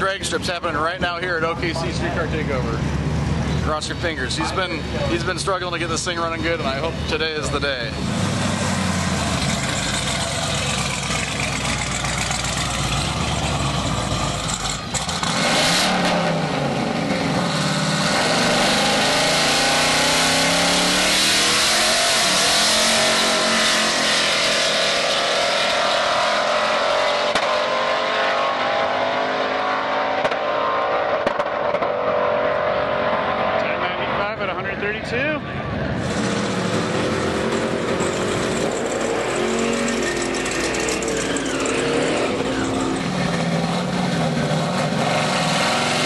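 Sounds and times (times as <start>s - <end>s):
engine revving under full throttle: 12.7s - 33.9s, 36.0s - 46.0s.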